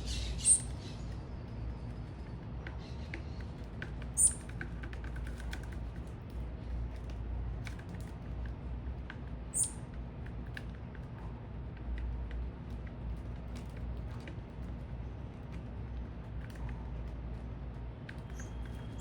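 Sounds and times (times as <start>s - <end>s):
high bird chirps: 0.0s - 1.0s, 4.2s - 4.4s, 9.6s - 9.8s.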